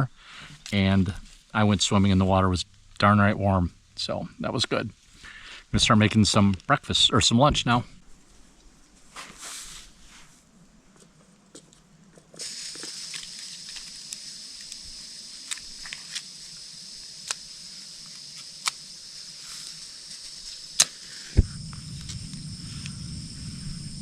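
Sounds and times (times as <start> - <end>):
stove burner hissing: 12.3 - 24.0.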